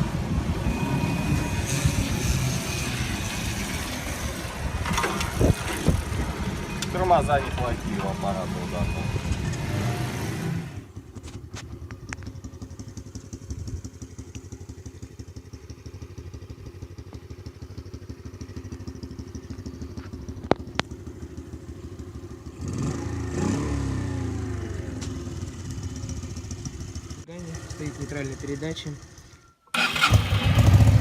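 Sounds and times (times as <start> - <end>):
motorcycle engine revving: 0.4 - 31.0
motorcycle engine idling: 10.8 - 23.3, 24.0 - 31.0.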